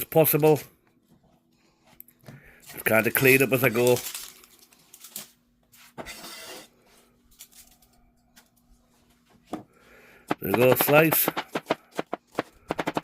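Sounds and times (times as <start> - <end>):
knife scraping board: 6.0 - 6.7.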